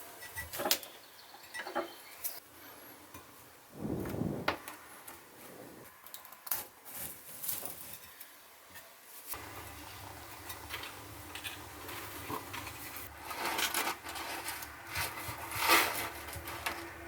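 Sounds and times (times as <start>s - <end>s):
hand rubbing and scraping: 11.8s - 17.0s.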